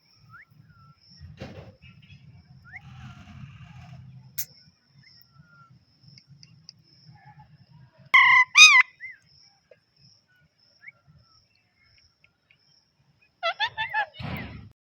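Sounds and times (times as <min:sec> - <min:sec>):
parrot short calls: 0:08.2 - 0:08.9
parrot shrill calls: 0:08.2 - 0:09.1, 0:13.4 - 0:14.2.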